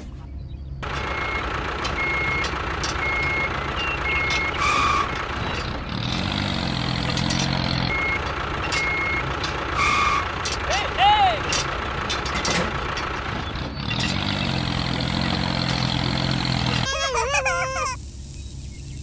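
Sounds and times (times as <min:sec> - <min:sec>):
vehicle engine running: 0:00.0 - 0:16.9
reversing alarm beeps: 0:01.0 - 0:05.2, 0:07.9 - 0:10.6.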